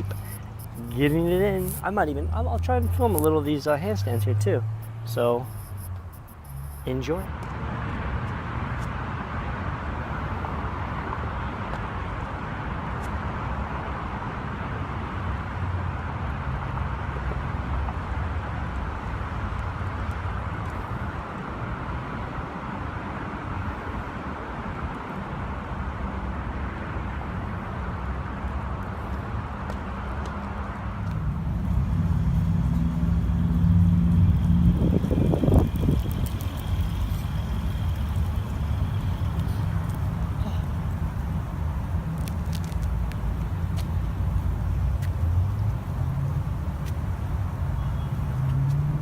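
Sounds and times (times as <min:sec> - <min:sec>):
road traffic: 0:00.0 - 0:49.0
low engine hum: 0:27.1 - 0:49.0.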